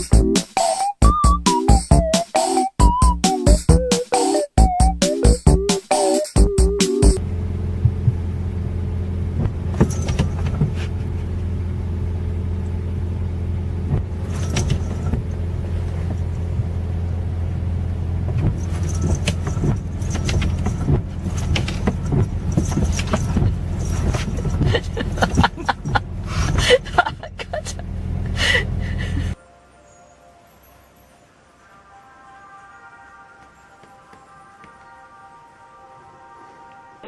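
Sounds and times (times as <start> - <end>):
clicks and light rattles: 18.3 - 26.0.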